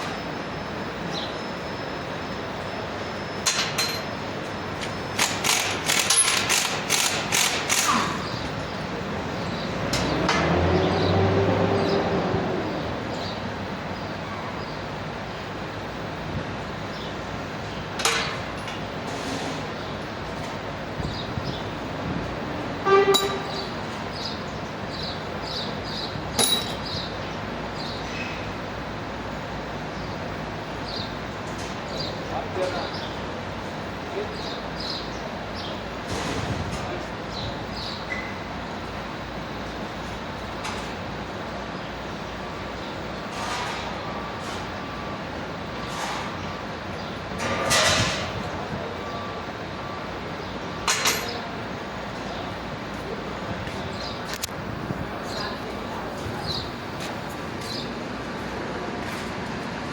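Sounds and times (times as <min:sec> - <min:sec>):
traffic: 0:00.0 - 0:59.9
workshop background noise: 0:00.0 - 0:59.9
sharp metallic clank: 0:23.0 - 0:23.6, 0:26.4 - 0:26.9.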